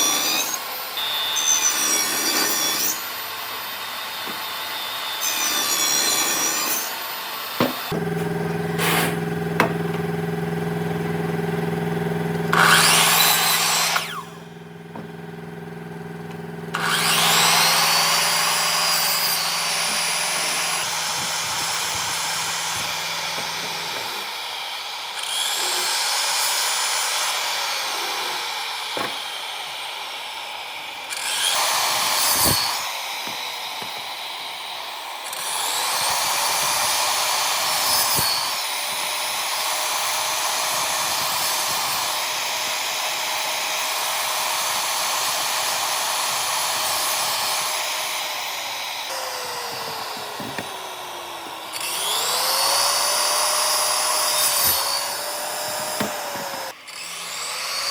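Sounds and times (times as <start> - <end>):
power tool motor whining: 0.0 - 57.9
sharp knocks: 7.6 - 10.1.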